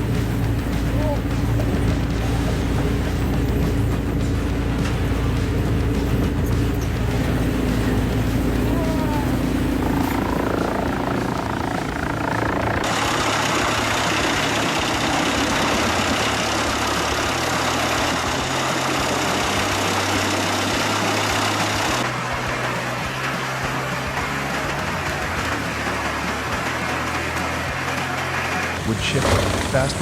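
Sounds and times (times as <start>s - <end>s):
wood chipper grinding: 0.0s - 30.0s.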